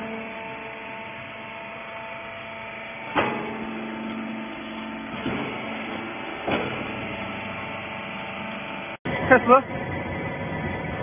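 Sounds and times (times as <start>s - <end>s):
baler motor and pump humming: 0.0s - 11.0s
sharp metallic clank: 3.1s - 7.2s.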